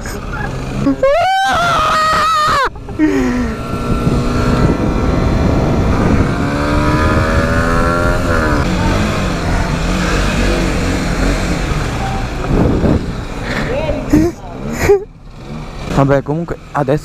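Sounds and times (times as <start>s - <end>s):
motorcycle engine: 0.0s - 17.0s
wind rumble on microphone: 2.4s - 9.8s, 11.5s - 14.0s.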